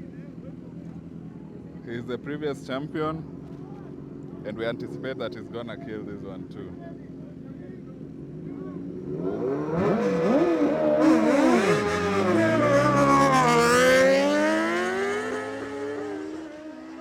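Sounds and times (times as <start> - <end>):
motorcycles accelerating away: 8.8 - 17.0
superbike engines revving: 8.8 - 17.0.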